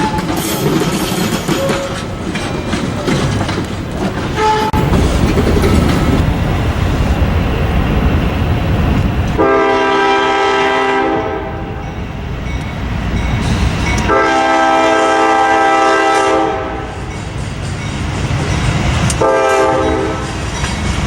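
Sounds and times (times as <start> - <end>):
train rumbling: 0.0 - 21.0
locomotive air horn blasts: 4.4 - 4.8, 9.4 - 11.8, 14.1 - 17.0, 19.2 - 20.3.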